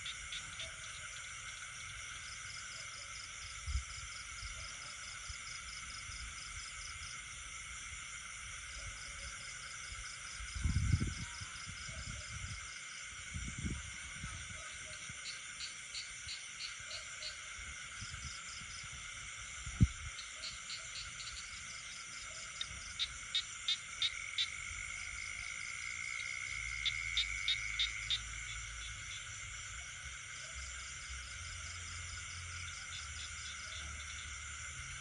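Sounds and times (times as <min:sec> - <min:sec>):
insects trilling: 0:00.0 - 0:35.0
frog calling in pulses: 0:20.2 - 0:29.2.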